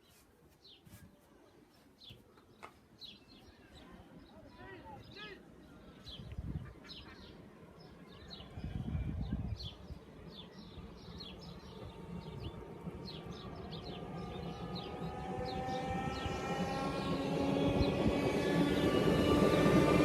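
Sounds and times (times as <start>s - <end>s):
train electric hum and whine: 5.4s - 20.0s
small birds chirping: 9.4s - 18.0s.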